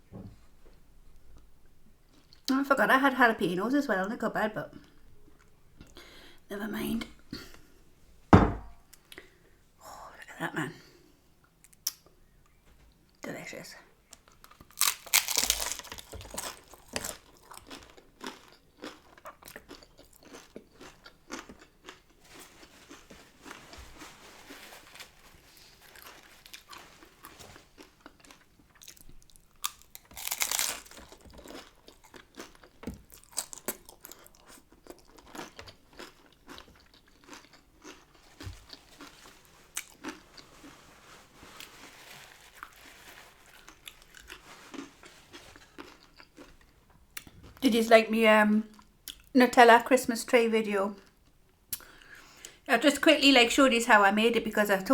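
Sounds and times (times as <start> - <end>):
taco shell crunching: 14.2 - 23.7, 24.6 - 47.3
person chewing: 14.2 - 23.8, 25.7 - 47.6.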